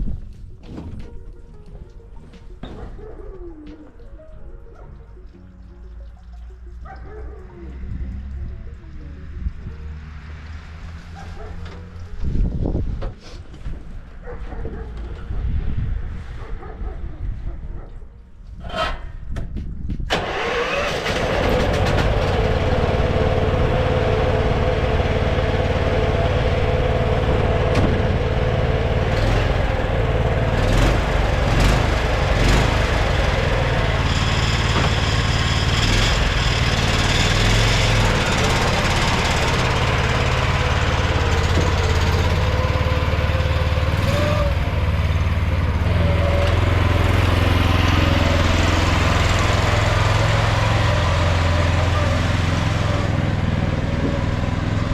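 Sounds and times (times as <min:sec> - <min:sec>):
engine starter: 0:20.1 - 0:53.2
tractor engine running: 0:20.1 - 0:54.9.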